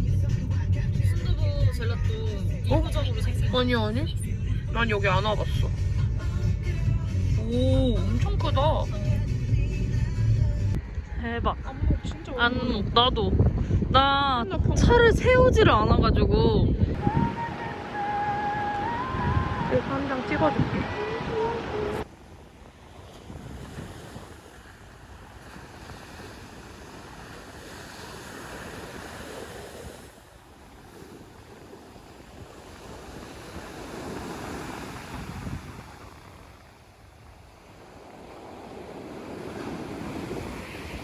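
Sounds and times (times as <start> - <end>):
wind buffeting microphone: 10.7 - 41.0
sea waves breaking: 16.9 - 41.0.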